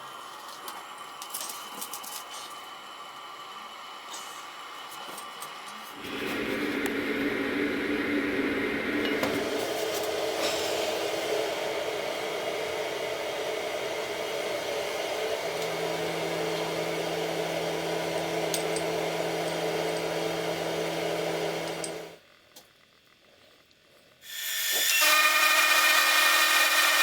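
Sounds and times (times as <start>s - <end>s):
electric motor whirring hum: 1.8s - 22.3s, 24.2s - 27.0s
lower hum tone: 6.0s - 22.2s.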